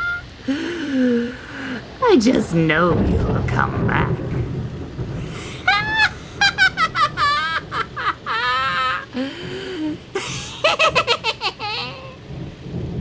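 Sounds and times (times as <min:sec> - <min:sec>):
high-pitched cackling laugh: 0:00.0 - 0:00.3, 0:05.7 - 0:12.2.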